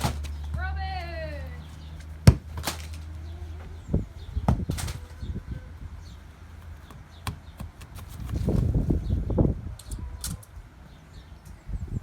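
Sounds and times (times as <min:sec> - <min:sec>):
football knocking on hard ground: 0:02.2 - 0:02.7.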